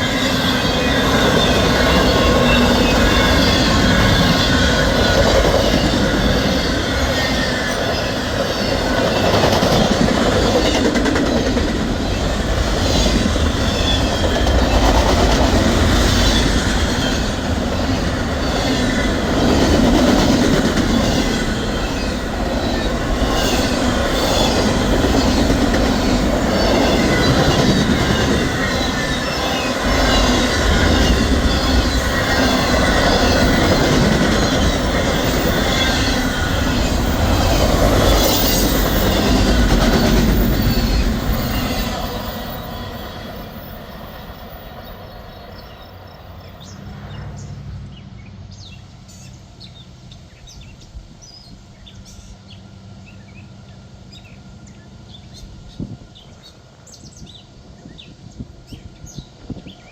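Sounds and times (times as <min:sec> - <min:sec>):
wheel squeal: 0:00.0 - 0:09.9, 0:21.0 - 0:45.9
train wheels clacking over rail joints: 0:00.0 - 0:43.6.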